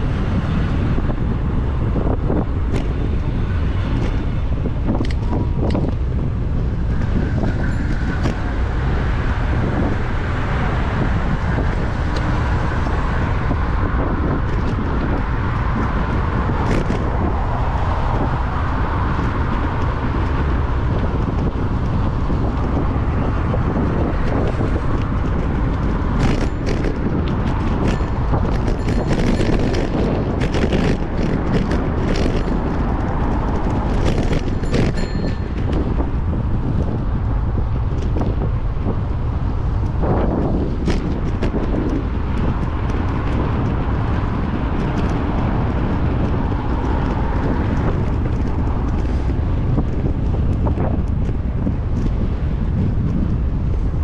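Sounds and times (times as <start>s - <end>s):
cars passing: 0.0s - 54.0s
wind rumbling on microphone: 0.0s - 54.0s
sharp clicks and rattles: 19.1s - 37.2s.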